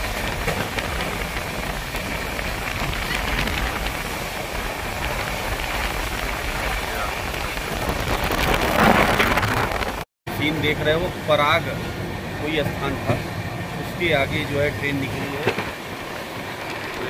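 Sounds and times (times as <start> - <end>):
wind rushing: 0.0 - 10.1
low train rumble: 0.0 - 17.0
wheels rushing on rails: 0.0 - 17.0.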